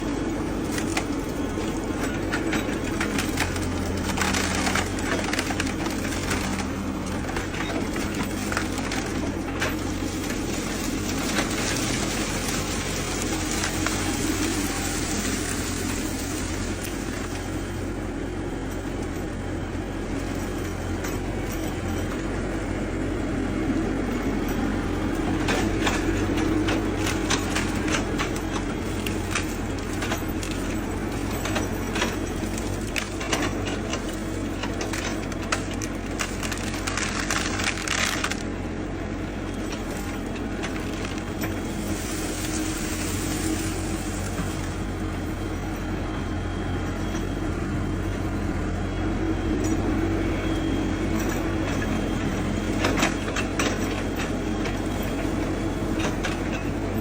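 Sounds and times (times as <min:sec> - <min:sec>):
bamboo cracking and snapping: 0:31.4 - 0:38.5.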